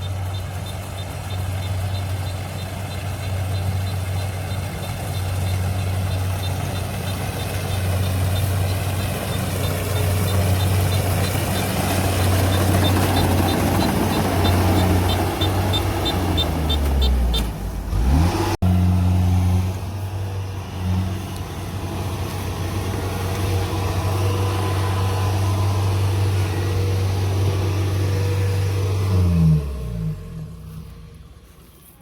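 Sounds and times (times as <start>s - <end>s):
light fast ticking: 0.0s - 17.4s
diesel engine running: 0.0s - 32.0s.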